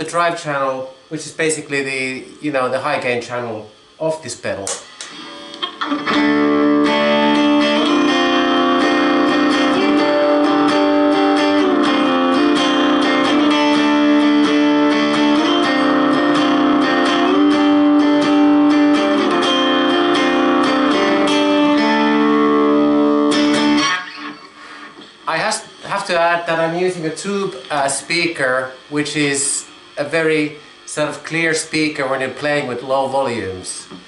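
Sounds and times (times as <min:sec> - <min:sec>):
distorted electric guitar chords: 0:05.1 - 0:26.2.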